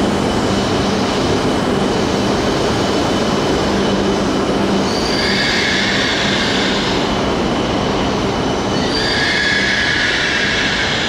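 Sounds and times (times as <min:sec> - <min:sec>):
wheels rumbling on rail: 0:00.0 - 0:11.0
high brake squeal: 0:04.8 - 0:07.0, 0:08.7 - 0:11.0.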